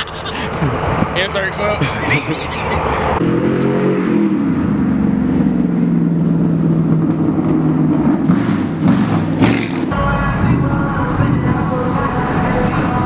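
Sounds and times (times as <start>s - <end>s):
heavy low rumble: 4.4s - 13.0s.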